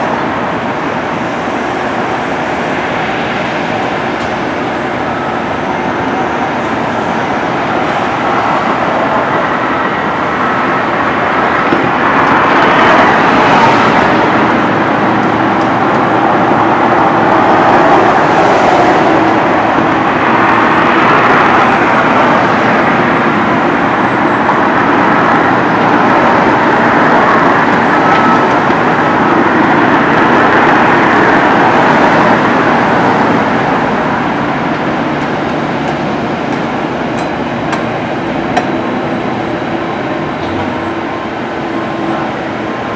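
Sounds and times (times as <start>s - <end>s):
moving vehicle running noise: 0.0s - 42.9s.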